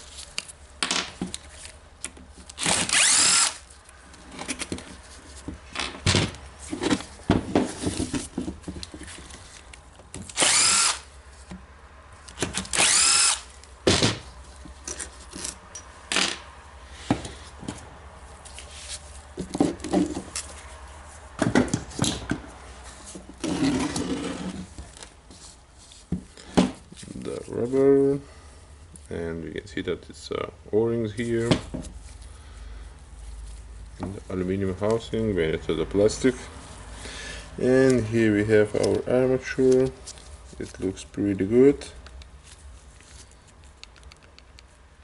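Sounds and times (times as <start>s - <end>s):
power screwdriver whining: 2.6s - 3.6s, 10.3s - 11.1s, 12.6s - 13.5s.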